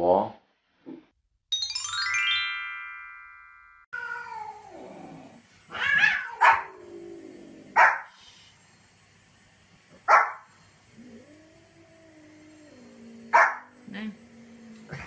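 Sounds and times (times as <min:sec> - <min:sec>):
falling bell-like notes: 0:01.5 - 0:03.9
dog barking: 0:06.0 - 0:06.7, 0:07.8 - 0:08.1, 0:10.1 - 0:10.5, 0:13.3 - 0:13.7.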